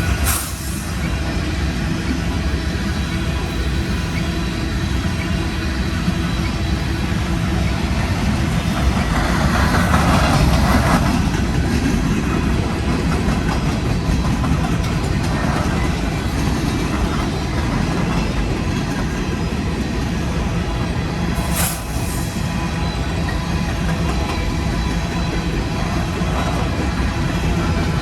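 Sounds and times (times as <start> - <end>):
freight train rumbling past: 0.0 - 28.0
wheels clacking over rail joints: 5.1 - 20.5.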